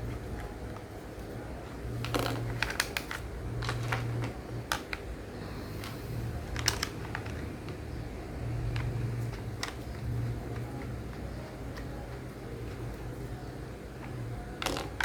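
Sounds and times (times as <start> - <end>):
plastic parts clicking together: 2.0 - 5.2, 5.8 - 7.9, 8.7 - 12.2, 14.0 - 15.0.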